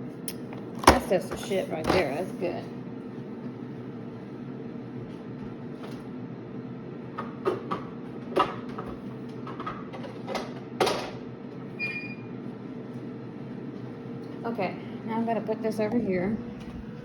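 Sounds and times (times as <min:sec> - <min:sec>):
kitchen appliance humming: 0:00.0 - 0:17.0.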